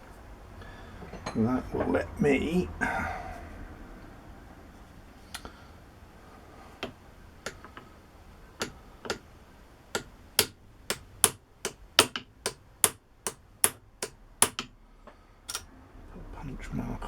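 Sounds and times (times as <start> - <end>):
hammer tapping metal punch: 6.8 - 7.9, 8.5 - 9.3, 9.9 - 14.8.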